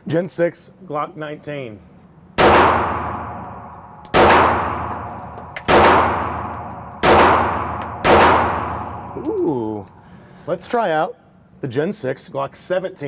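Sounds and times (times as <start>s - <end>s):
pistol shots with ringing echo: 2.4s - 9.2s.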